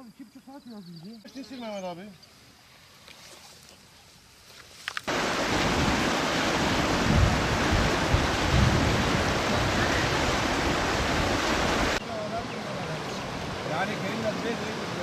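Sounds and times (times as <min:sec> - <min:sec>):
low rumbling surges: 0:05.1 - 0:15.0.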